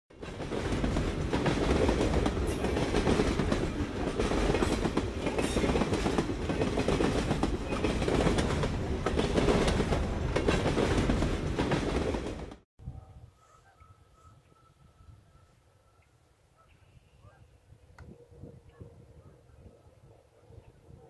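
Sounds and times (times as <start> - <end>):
train wheels clattering over rail joints: 0.2 - 12.6.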